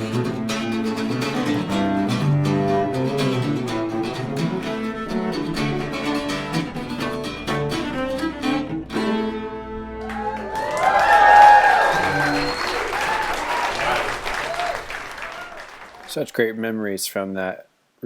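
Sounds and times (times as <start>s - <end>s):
plucked guitar notes: 0.0s - 10.4s
bowed cello: 0.0s - 10.5s.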